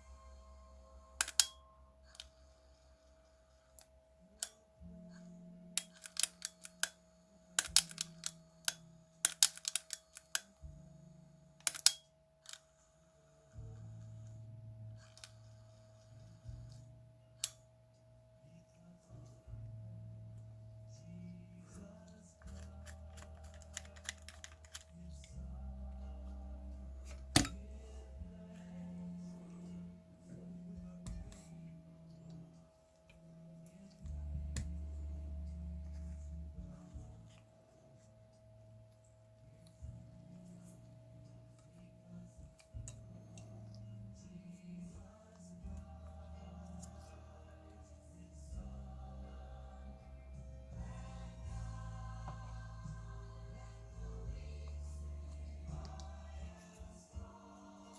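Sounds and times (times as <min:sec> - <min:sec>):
faint low hum: 0:00.0 - 0:57.9
small parts clicking and tapping: 0:01.2 - 0:02.4, 0:05.8 - 0:07.0, 0:07.6 - 0:10.6, 0:11.6 - 0:12.6, 0:22.4 - 0:25.4
cassette player clicks and taps: 0:27.1 - 0:27.6.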